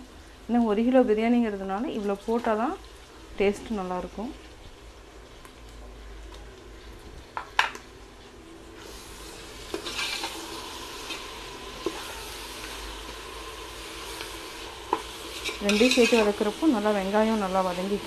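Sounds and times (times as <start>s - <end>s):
onions sizzling in hot oil: 0.0s - 18.0s
spoon scraping a pot: 9.7s - 10.4s, 14.9s - 16.5s.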